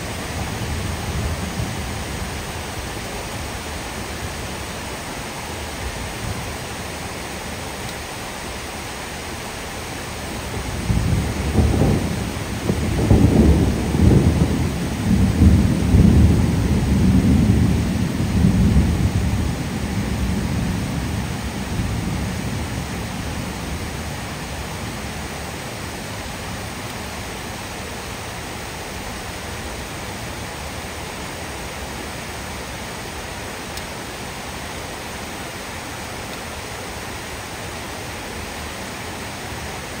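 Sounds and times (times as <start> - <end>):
low rumble of thunder: 0.0 - 3.0, 10.4 - 26.5
heavy rain on trees: 0.0 - 40.0.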